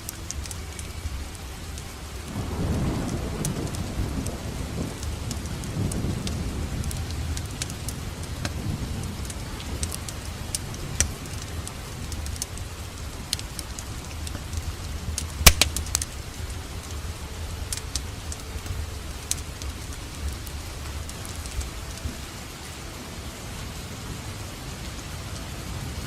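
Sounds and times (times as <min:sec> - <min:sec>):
wood fire crackling and popping: 0:00.0 - 0:22.4
rain: 0:00.0 - 0:26.0.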